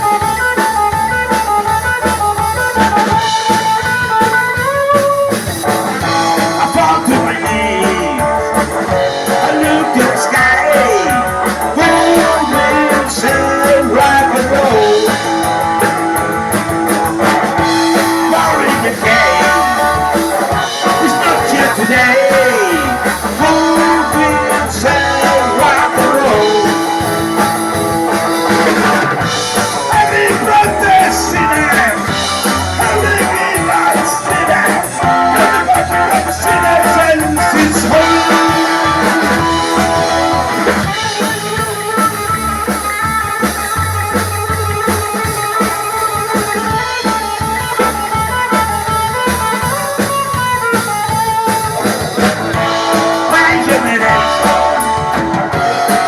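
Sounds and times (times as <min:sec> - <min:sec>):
bass guitar: 0:00.0 - 0:56.0
drum kit: 0:00.0 - 0:56.0
electric guitar: 0:00.0 - 0:56.0
man singing: 0:06.0 - 0:41.3, 0:51.0 - 0:56.0.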